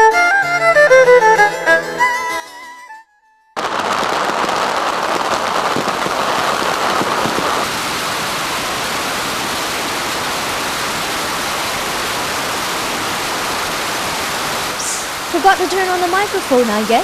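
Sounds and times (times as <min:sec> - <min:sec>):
bottle rockets hissing and crackling: 0:03.6 - 0:15.7.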